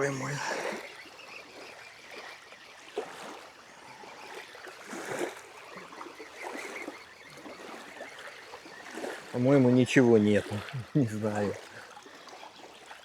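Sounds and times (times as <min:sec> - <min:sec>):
water splashing at water's edge: 0:02.9 - 0:13.0.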